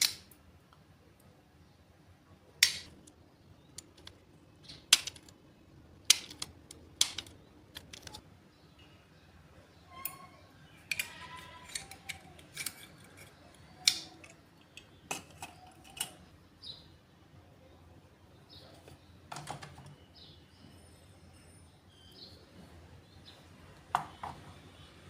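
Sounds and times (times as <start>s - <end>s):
clicks of small hard objects: 2.6s - 5.4s, 6.0s - 8.2s, 10.0s - 16.2s.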